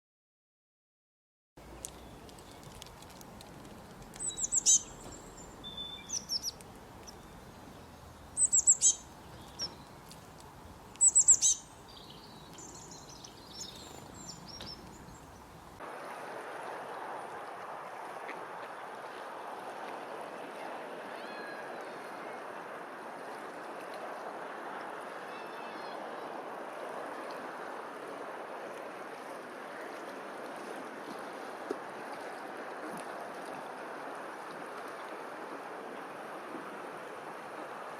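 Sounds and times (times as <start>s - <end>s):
rushing outdoor noise: 1.6s - 37.9s
faint high bird chirps: 4.2s - 7.4s, 8.4s - 9.9s, 11.0s - 15.3s.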